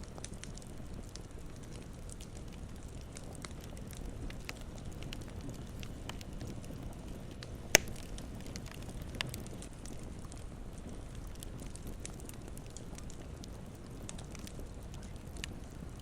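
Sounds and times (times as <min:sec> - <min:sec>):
campfire crackling: 0:00.0 - 0:16.0
low rumble of flames: 0:00.0 - 0:16.0
sharp fire pop: 0:07.7 - 0:08.3.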